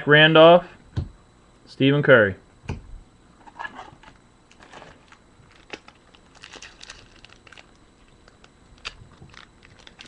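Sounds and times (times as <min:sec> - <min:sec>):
wrapper crinkling: 0:04.5 - 0:10.0.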